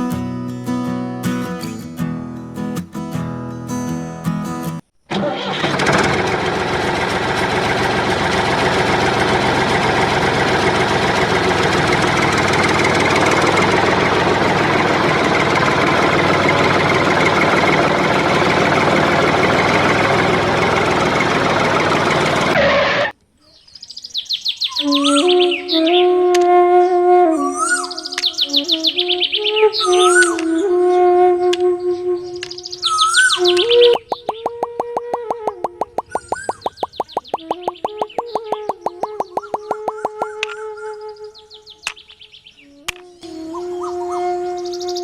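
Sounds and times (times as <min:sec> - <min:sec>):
small engine running: 0:05.3 - 0:22.6.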